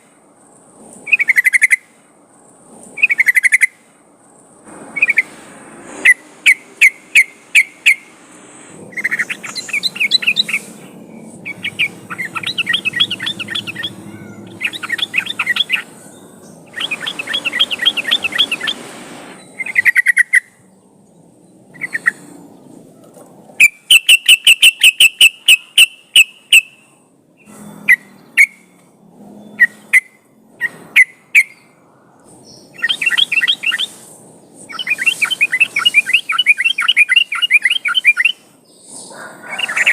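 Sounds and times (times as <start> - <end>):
bird singing and calling: 1.1 - 1.8, 3.0 - 3.8, 5.0 - 5.3, 8.9 - 18.8, 19.4 - 20.6, 21.2 - 22.7, 29.4 - 31.7, 32.4 - 39.9.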